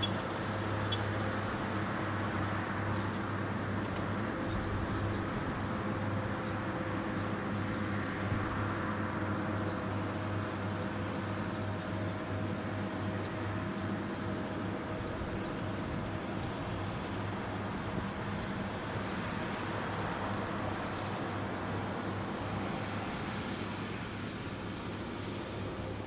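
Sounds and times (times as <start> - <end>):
harvester engine drone: 0.0 - 26.0.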